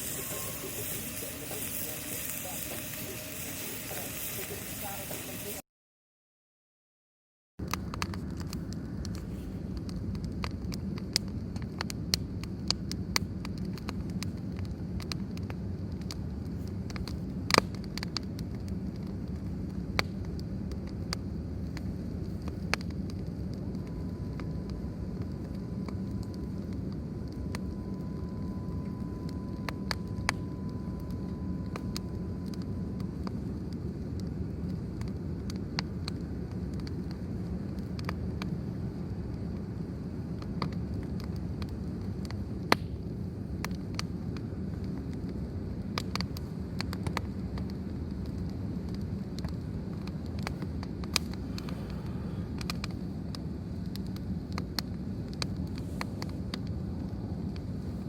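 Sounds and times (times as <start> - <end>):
faint thin steady tone: 0.0 - 5.6, 23.6 - 34.0
fire crackling and popping: 0.0 - 5.6, 7.6 - 58.0
low rumble of fire: 0.0 - 5.6, 7.6 - 58.0.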